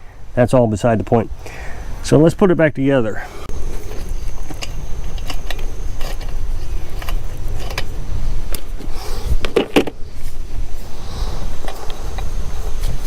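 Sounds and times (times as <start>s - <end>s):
small parts clicking and clinking: 3.8s - 7.9s.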